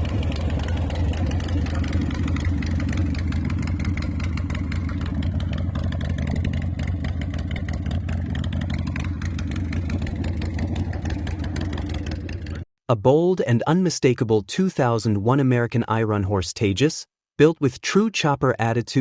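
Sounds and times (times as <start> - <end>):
motorcycle engine idling: 0.0 - 12.6.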